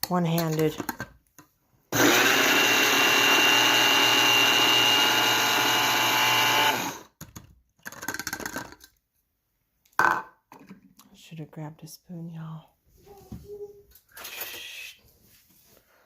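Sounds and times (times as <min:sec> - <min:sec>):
coffee grinder whining: 0:01.9 - 0:07.1.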